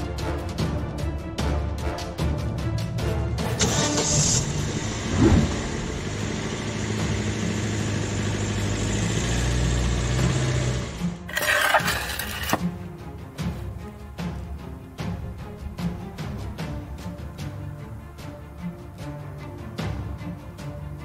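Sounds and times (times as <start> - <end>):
car engine starting and idling: 3.6 - 12.6.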